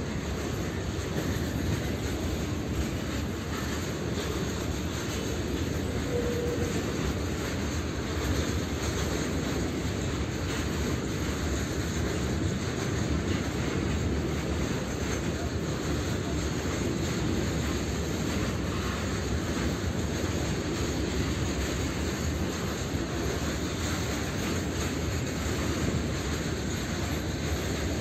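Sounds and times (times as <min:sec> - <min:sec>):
freight train rumbling past: 0:00.0 - 0:28.0.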